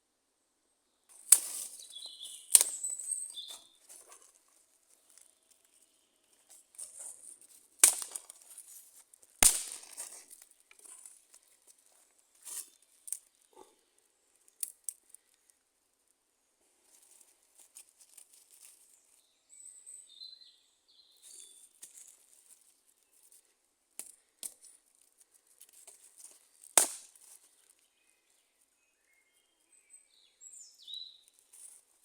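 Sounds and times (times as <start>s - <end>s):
wood fire crackling: 6.7s - 12.1s
fire pops: 9.4s - 11.0s.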